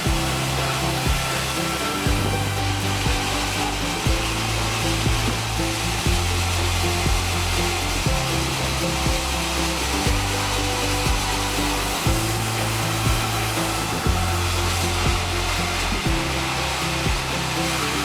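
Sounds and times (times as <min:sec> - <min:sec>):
background music with beat and bass: 0:00.0 - 0:18.0
sawmill machinery rushing noise: 0:00.0 - 0:18.0.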